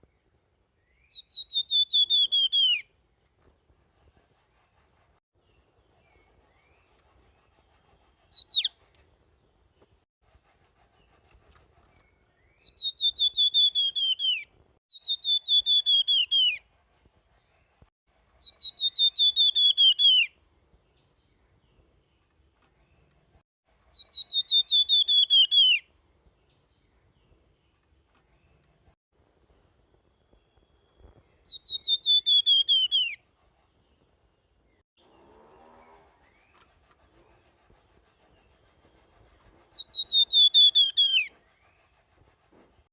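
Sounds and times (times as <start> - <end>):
songbird whistling notes: 0.8 - 2.9, 8.3 - 8.8, 12.0 - 16.6, 18.4 - 20.4, 23.9 - 25.9, 30.4 - 33.2, 39.7 - 42.0.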